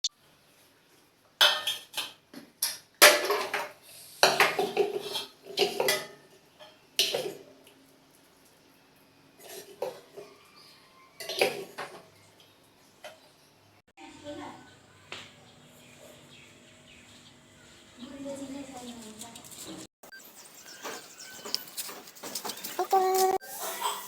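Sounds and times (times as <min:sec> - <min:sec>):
dishes and utensils clattering: 0:01.4 - 0:07.7, 0:09.4 - 0:12.3.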